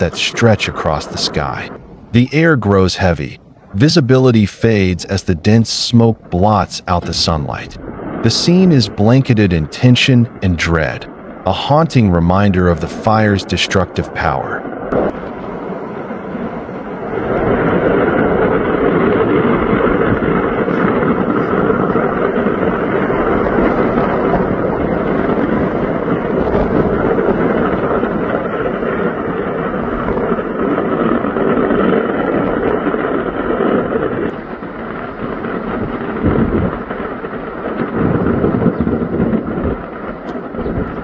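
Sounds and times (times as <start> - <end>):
large fire roaring: 0.0 - 41.0
wind buffeting microphone: 0.0 - 41.0
low thumps: 14.6 - 41.0.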